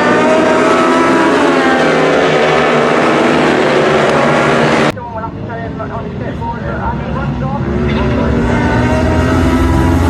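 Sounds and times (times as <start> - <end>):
racing engines passing by: 0.0 - 10.0.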